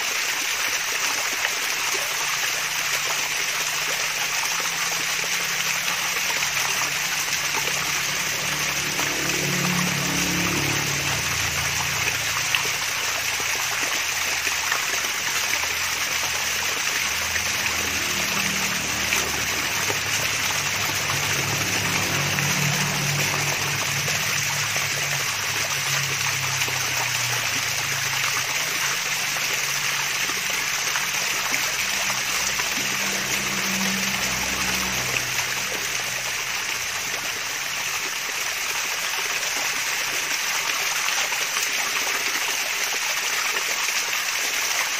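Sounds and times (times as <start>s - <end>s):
small waterfall splashing: 0.0s - 44.9s.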